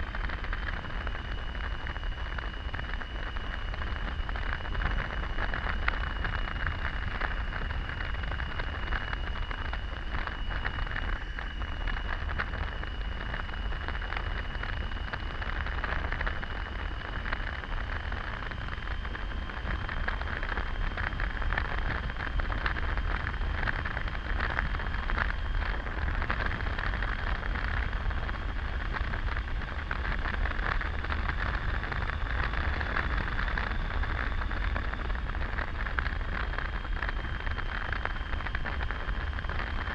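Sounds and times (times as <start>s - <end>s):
faint high whine: 0.0s - 39.9s
wind and road noise: 0.0s - 39.9s.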